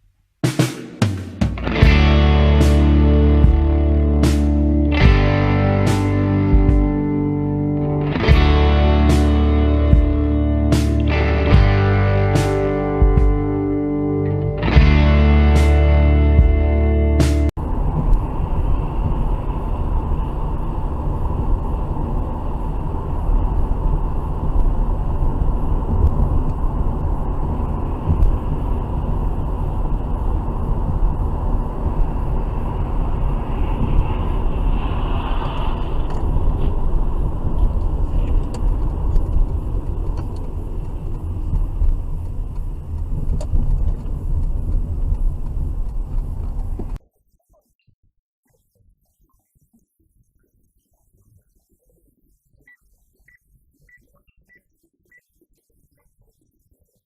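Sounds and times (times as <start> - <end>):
car engine and road noise: 1.6 - 47.0.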